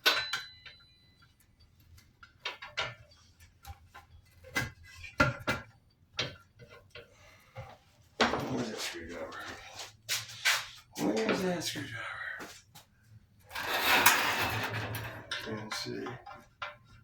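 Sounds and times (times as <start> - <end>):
metal clang: 0.0 - 0.8.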